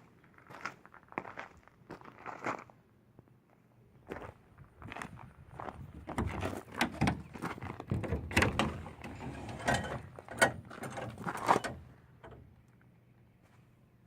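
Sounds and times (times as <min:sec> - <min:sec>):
metal latches clicking and rattling: 0:06.2 - 0:12.5.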